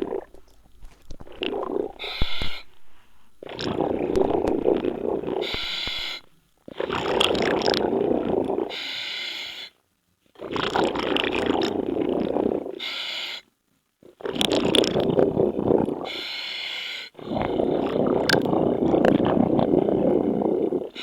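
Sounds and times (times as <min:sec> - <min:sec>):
diver exhaling bubbles: 0:00.0 - 0:08.7, 0:14.2 - 0:16.2, 0:17.2 - 0:21.0
regulator hissing inhalation: 0:01.6 - 0:06.3.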